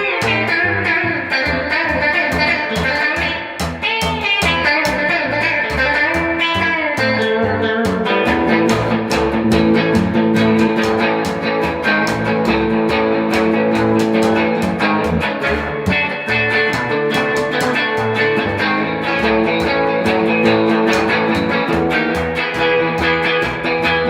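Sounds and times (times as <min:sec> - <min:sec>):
bass guitar: 0:00.0 - 0:24.0
electric guitar: 0:00.0 - 0:24.0
steady drum beat: 0:01.7 - 0:24.0.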